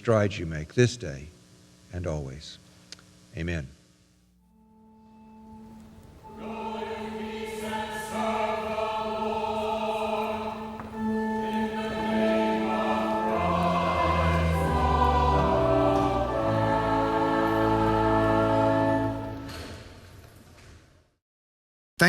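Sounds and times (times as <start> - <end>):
church choir singing: 4.9 - 19.8.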